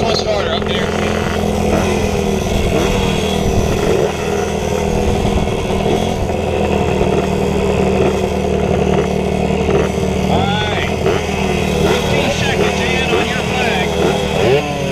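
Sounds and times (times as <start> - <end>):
pit bike engines revving: 0.0 - 14.9.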